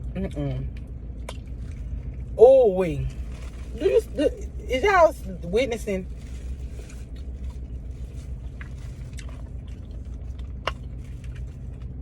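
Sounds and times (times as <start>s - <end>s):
low hum inside car: 0.0s - 12.0s
person chewing: 6.0s - 12.0s.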